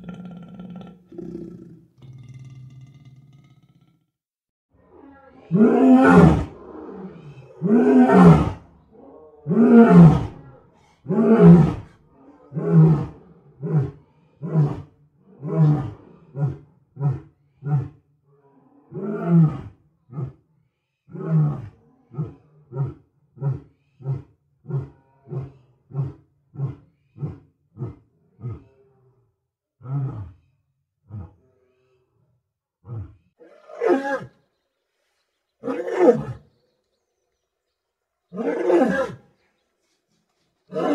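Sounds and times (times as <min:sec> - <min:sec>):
big cat roaring: 0:00.0 - 0:04.0, 0:04.9 - 0:17.2
big cat growling: 0:00.0 - 0:04.1.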